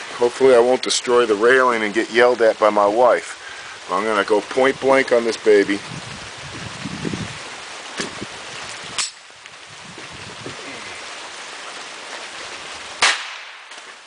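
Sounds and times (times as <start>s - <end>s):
rain hissing: 0.0s - 14.0s.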